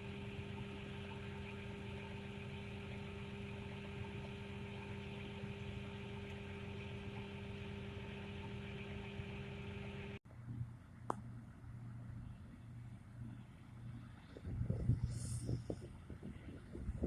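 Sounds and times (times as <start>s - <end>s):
diesel engine running: 0.0s - 10.8s.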